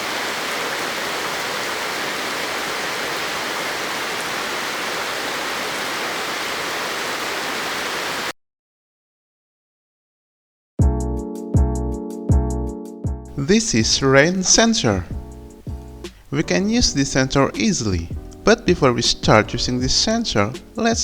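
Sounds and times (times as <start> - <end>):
rushing water: 0.0 - 8.3.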